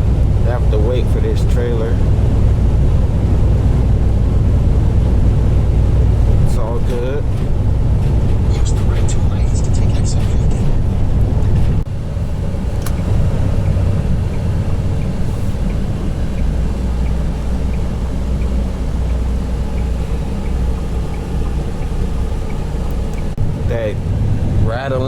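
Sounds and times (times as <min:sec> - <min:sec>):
truck engine and road drone: 0:00.0 - 0:25.0
faint regular ticking: 0:12.8 - 0:23.4.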